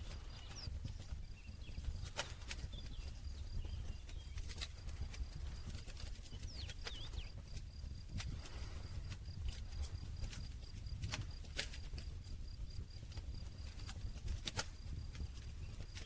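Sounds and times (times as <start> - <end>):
faint bird chirps: 0.0 - 7.6
campfire crackling and popping: 0.0 - 16.0.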